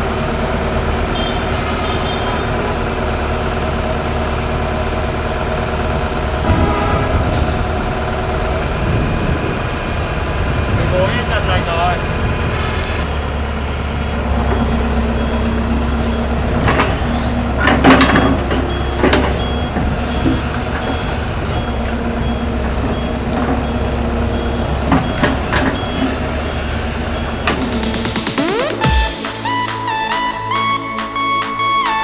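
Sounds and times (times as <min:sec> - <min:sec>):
excavator diesel engine running: 0:00.0 - 0:32.0
high alarm beep: 0:27.7 - 0:32.0.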